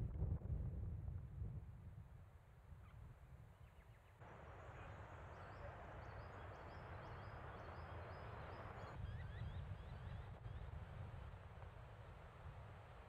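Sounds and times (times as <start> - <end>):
wind rumble on microphone: 0.0 - 3.6.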